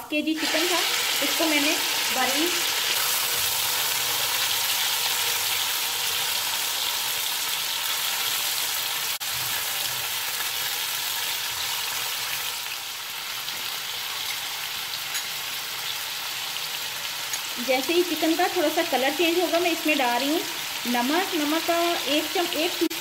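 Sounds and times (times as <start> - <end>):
chicken sizzling in hot oil: 0.1 - 23.0.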